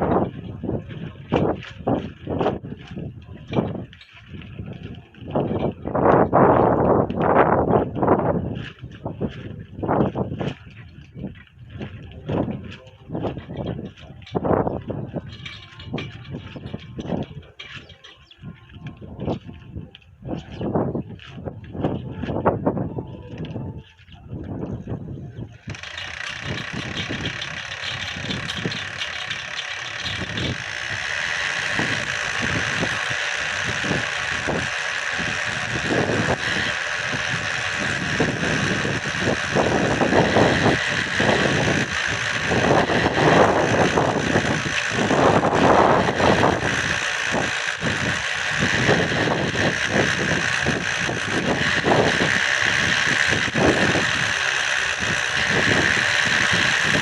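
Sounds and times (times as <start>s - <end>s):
motor wheel whining: 0.0s - 20.7s, 24.4s - 57.0s
clattering rattle: 13.2s - 18.4s, 25.6s - 57.0s.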